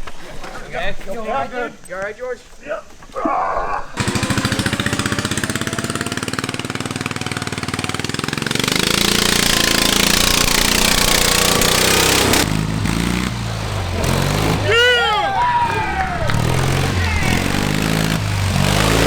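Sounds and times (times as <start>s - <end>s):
lawn tractor engine revving: 4.0s - 19.0s.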